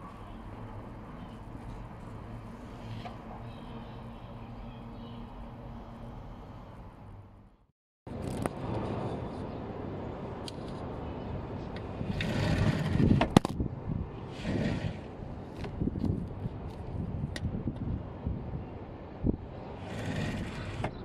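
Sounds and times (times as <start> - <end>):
wind buffeting microphone: 11.9 - 21.0.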